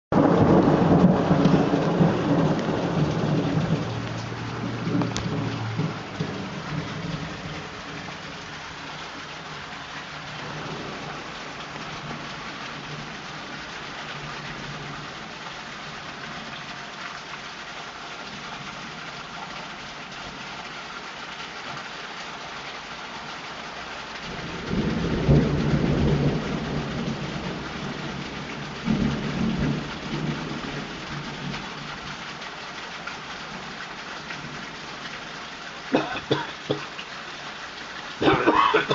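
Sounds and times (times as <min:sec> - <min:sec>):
thunder rumbling: 0:00.1 - 0:08.4, 0:10.3 - 0:13.2, 0:24.3 - 0:31.6
heavy rain pouring: 0:00.1 - 0:38.9.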